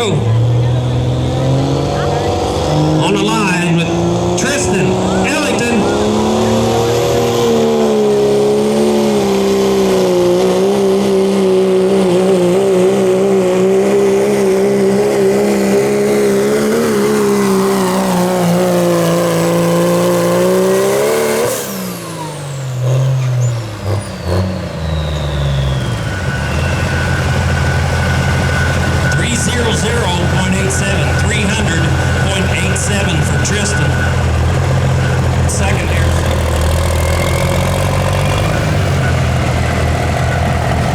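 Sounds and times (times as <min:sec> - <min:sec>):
diesel truck engine revving: 0:00.0 - 0:40.9
high whine winding down: 0:14.4 - 0:40.9.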